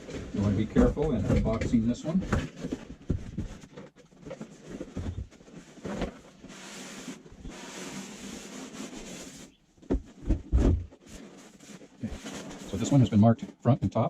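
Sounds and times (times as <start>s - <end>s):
packaging rubbing and sliding: 2.0s - 9.6s, 10.4s - 13.1s.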